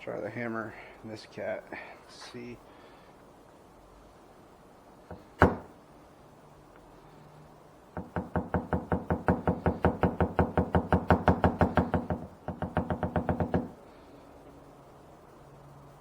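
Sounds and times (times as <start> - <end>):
hammer tapping car panel: 8.0 - 13.7.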